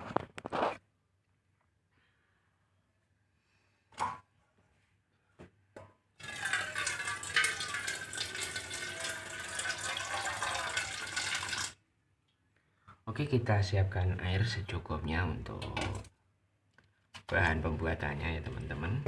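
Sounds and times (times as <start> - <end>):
water pouring into container: 6.2 - 11.8.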